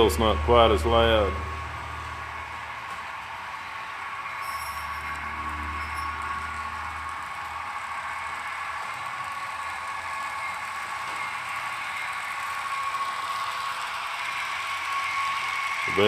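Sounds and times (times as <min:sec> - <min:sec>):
model locomotive whirring: 0:00.0 - 0:16.0
faint bell ringing: 0:04.3 - 0:08.3.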